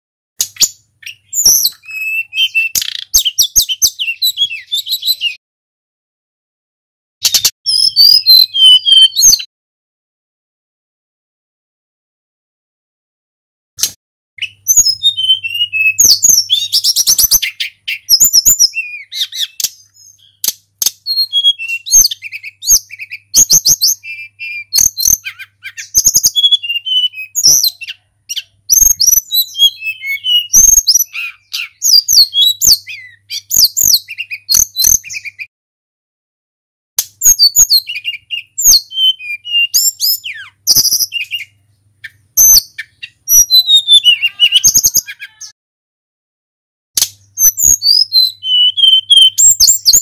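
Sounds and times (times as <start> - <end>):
songbird singing: 0.4 - 5.4, 7.3 - 9.5, 14.4 - 35.5, 37.0 - 45.6, 47.0 - 50.0.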